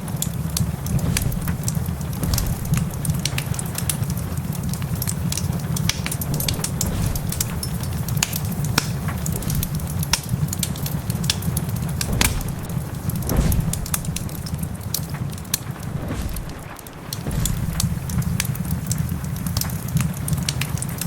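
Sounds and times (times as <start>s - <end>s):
heavy rain rumble: 0.0s - 21.0s
wood fire crackling and popping: 0.0s - 21.0s
heavy low thud: 0.6s - 3.9s, 6.0s - 10.6s, 12.0s - 18.6s.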